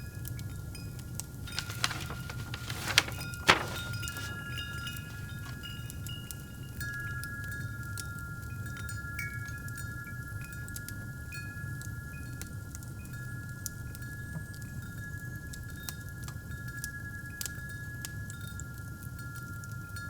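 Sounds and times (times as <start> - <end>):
fireplace crackling: 1.3 - 6.2.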